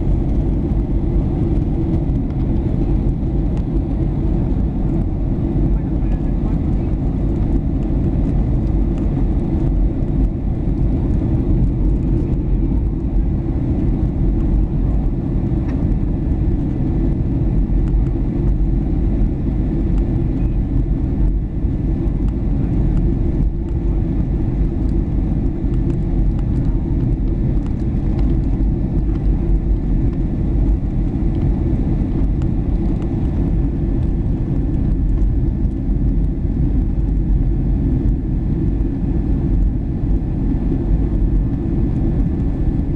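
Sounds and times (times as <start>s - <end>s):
jet engine cabin rumble: 0.0s - 42.9s.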